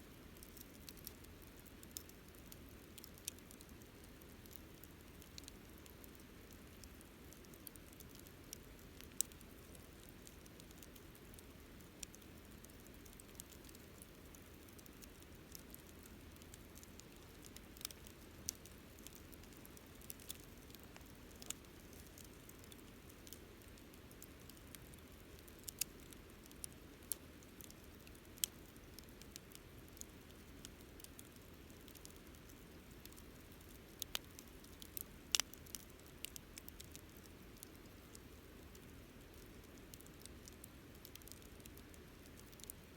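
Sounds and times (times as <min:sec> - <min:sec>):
campfire pops and snaps: 0:14.8 - 0:24.6, 0:34.0 - 0:37.7
low rush of burning fire: 0:29.9 - 0:42.7.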